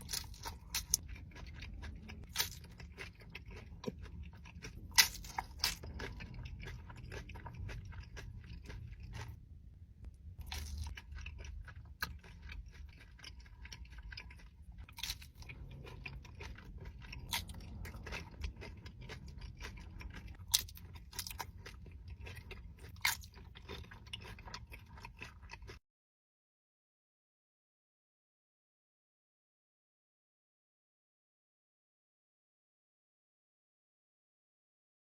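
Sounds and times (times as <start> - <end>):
chewing and crunching food: 0.0 - 25.8.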